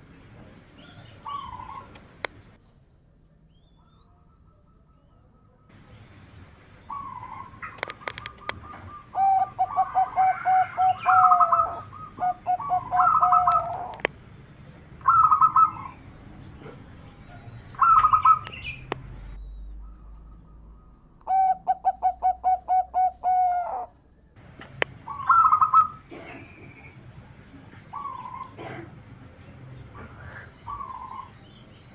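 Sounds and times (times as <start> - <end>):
dove cooing trills: 0.8 - 2.2, 6.8 - 14.1, 15.0 - 16.8, 17.4 - 18.9, 19.8 - 24.0, 24.9 - 27.0, 27.8 - 29.1, 30.0 - 31.5
sharp clicks: 7.6 - 8.7, 18.0 - 19.2.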